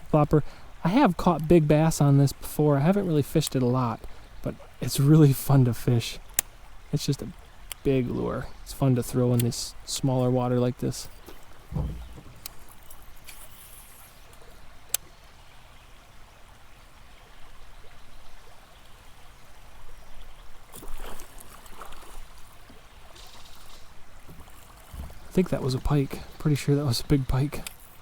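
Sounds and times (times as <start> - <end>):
river water trickling: 0.0 - 28.0
water splashing: 10.9 - 13.1.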